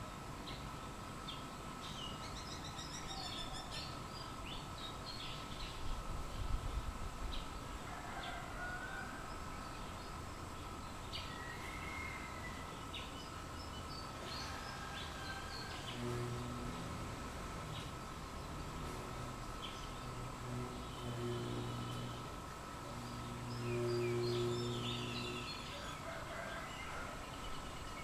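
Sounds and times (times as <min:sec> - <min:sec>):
faint outdoor hiss: 0:00.0 - 0:28.0
small birds chirping: 0:17.6 - 0:28.0.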